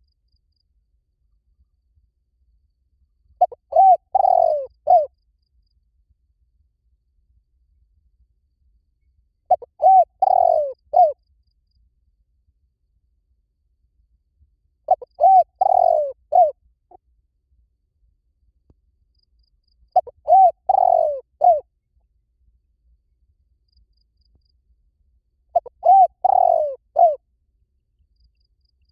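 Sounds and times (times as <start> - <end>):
dove cooing: 3.4 - 5.1, 9.5 - 11.2, 14.9 - 16.6, 20.0 - 21.6, 25.5 - 27.2.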